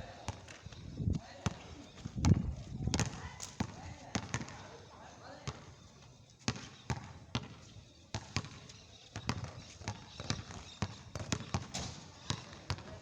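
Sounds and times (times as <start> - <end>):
basketball bouncing on court: 2.2 - 4.6, 5.4 - 5.6, 6.5 - 8.6, 9.2 - 13.0.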